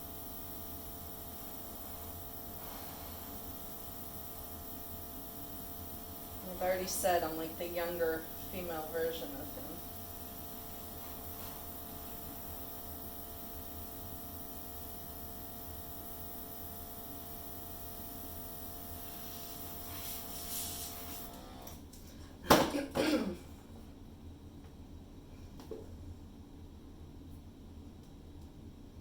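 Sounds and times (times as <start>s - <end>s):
hair dryer running: 0.0s - 21.9s
person coughing: 22.5s - 23.6s.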